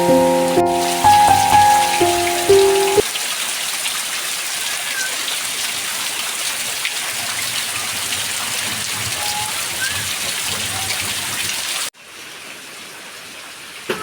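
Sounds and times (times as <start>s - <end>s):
music notes: 0.0s - 3.0s
heavy rain: 0.0s - 4.6s.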